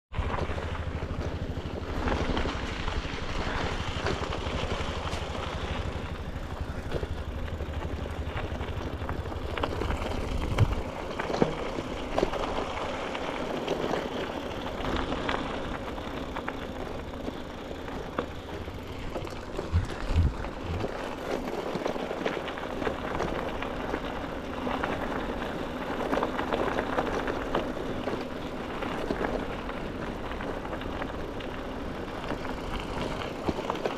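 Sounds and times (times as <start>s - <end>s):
bicycle tyre noise: 0.1s - 33.9s
heavy low rumble: 17.8s - 21.2s
wind rushing over microphone: 19.0s - 20.9s.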